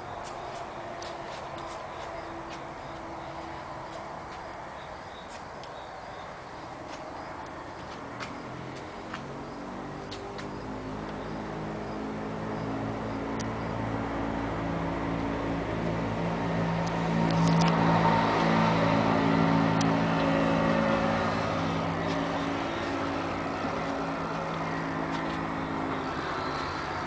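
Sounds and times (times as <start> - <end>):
vehicle engine running: 6.6 - 27.0.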